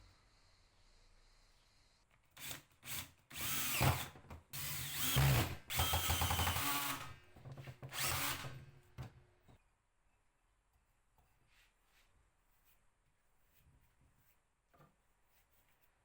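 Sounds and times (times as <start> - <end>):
power drill running: 2.4 - 7.1, 7.9 - 8.6.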